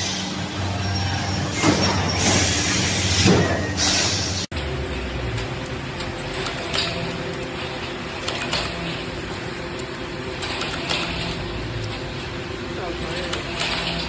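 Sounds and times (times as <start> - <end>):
machine motor running: 0.0 - 14.0.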